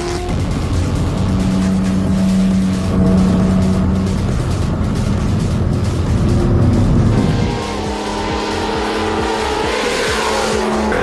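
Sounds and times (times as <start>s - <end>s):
background music with beat: 0.0s - 11.0s
sports car engine running: 0.0s - 11.0s.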